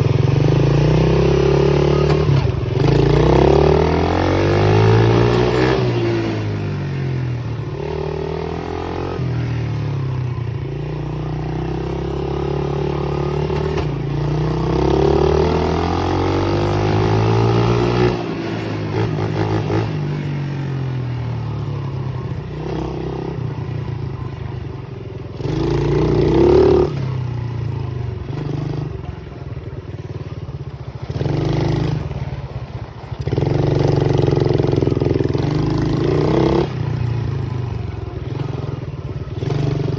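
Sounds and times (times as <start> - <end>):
pit bike engine revving: 0.0 - 29.7, 30.8 - 39.9.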